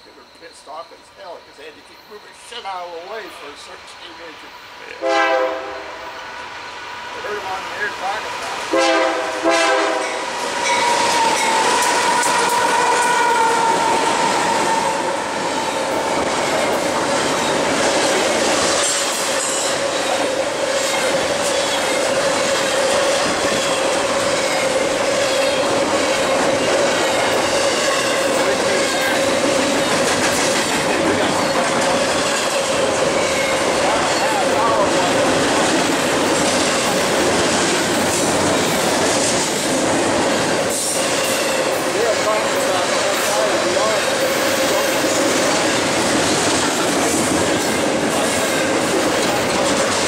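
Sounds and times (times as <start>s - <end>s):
freight train passing: 0.0s - 50.0s
wheels running on rails: 10.0s - 50.0s.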